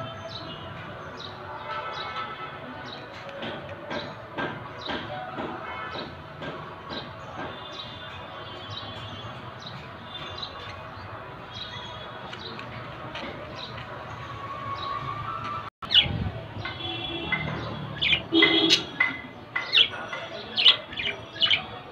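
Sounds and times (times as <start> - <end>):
budgerigars chirping and warbling: 15.9 - 16.2, 17.6 - 21.9.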